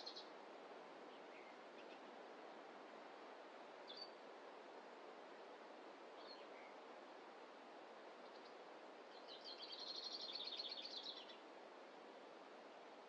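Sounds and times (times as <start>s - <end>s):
faint forest ambience hiss: 0.0s - 13.0s
songbird chirping and trilling: 8.3s - 11.4s.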